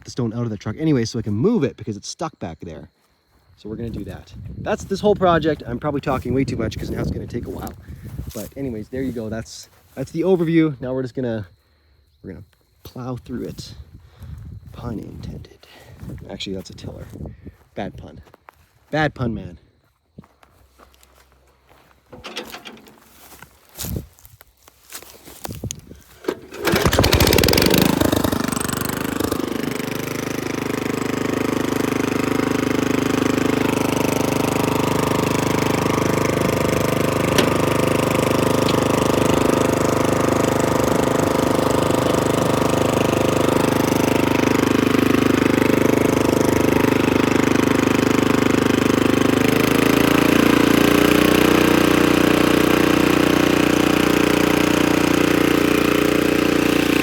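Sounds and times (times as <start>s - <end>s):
rototiller engine running: 22.1s - 23.9s, 26.0s - 57.0s.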